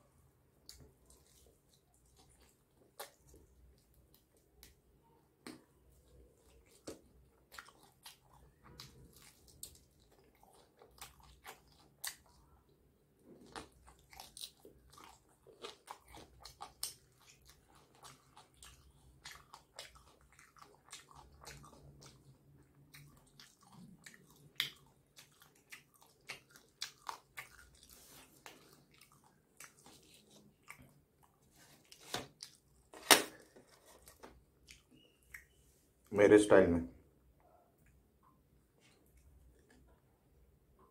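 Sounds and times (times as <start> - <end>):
chewing crispy chicken: 0.6 - 4.8, 5.5 - 32.9
wet mouth clicks: 34.6 - 35.6.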